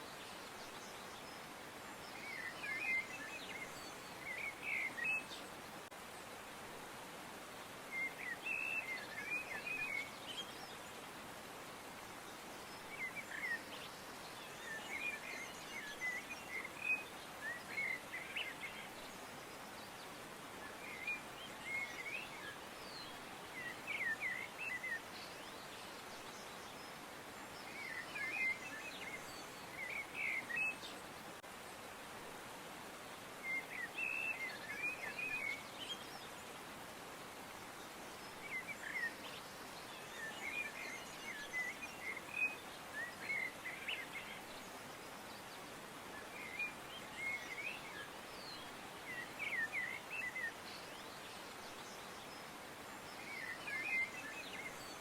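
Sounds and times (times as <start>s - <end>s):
faint background hiss: 0.0s - 55.0s
small birds chirping: 37.3s - 55.0s.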